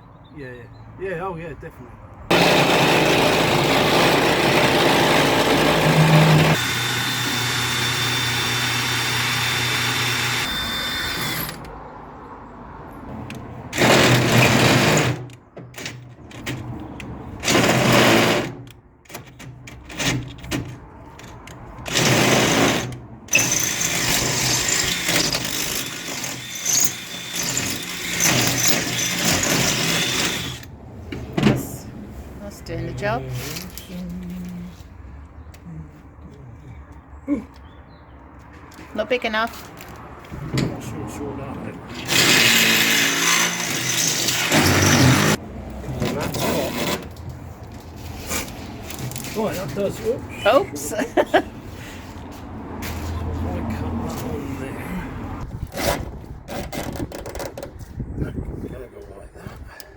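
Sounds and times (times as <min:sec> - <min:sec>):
electric power tool running: 0:02.3 - 0:11.6, 0:21.9 - 0:30.7, 0:42.1 - 0:45.4.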